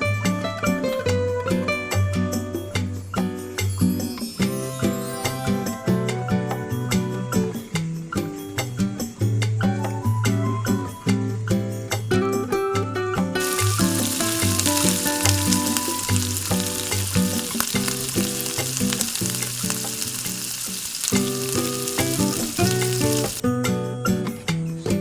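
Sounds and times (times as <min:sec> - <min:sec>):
plucked-string background music: 0:00.0 - 0:25.0
food sizzling in hot oil: 0:13.4 - 0:23.4.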